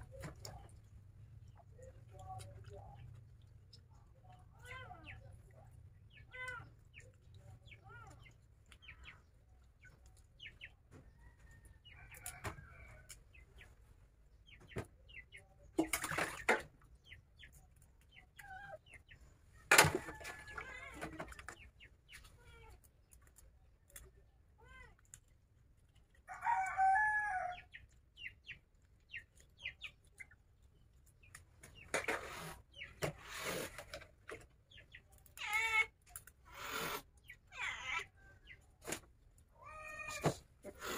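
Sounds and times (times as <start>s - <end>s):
chickens clucking: 0.0s - 22.4s, 25.6s - 40.9s
splashing at a metal sink: 15.6s - 17.0s.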